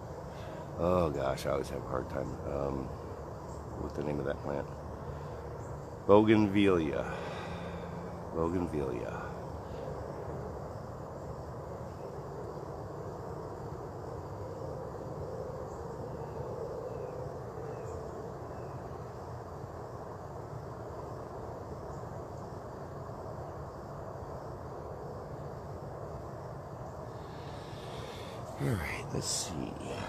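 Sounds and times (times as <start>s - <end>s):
low outdoor rumble: 0.0s - 30.0s
faint bird chirps: 15.5s - 19.1s.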